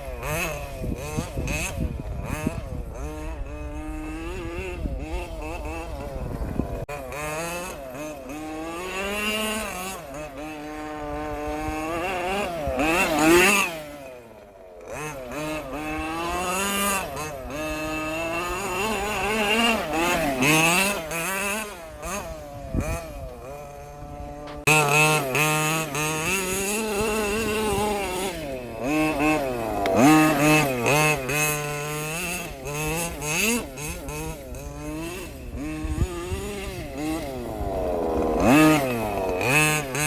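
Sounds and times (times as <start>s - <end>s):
rc car engine revving: 0.0s - 40.0s.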